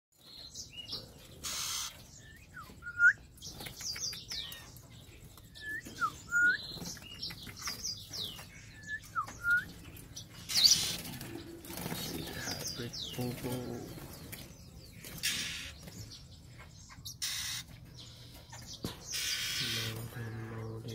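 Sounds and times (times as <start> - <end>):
birds whistling: 0.2 - 20.9
harsh bird call: 1.4 - 2.8, 17.1 - 17.7, 19.1 - 20.9.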